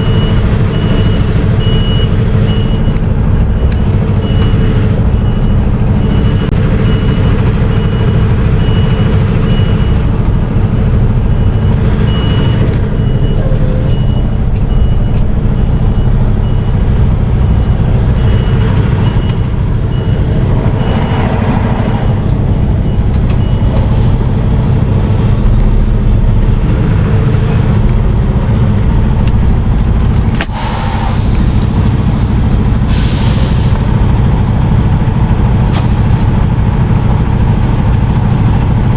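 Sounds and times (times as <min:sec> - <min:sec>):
backup alarm beeping: 0:00.0 - 0:10.1, 0:11.2 - 0:21.4, 0:22.5 - 0:24.2
diesel truck engine running: 0:00.0 - 0:38.9
loud hiss of released air: 0:30.4 - 0:34.1.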